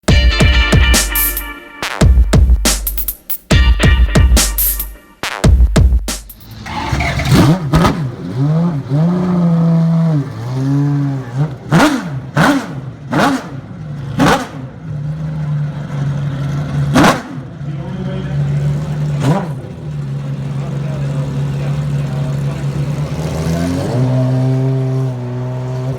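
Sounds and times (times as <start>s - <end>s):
racing car engine revving: 6.4s - 25.9s.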